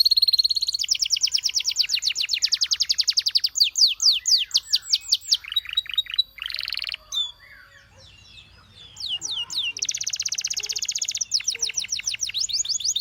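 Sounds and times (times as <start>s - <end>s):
canary singing trills: 0.0s - 13.0s.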